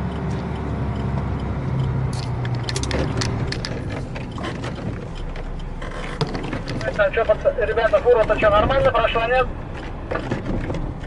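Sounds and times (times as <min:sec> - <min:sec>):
truck engine running: 0:00.0 - 0:11.0
sharp clicks and rattles: 0:00.1 - 0:08.8.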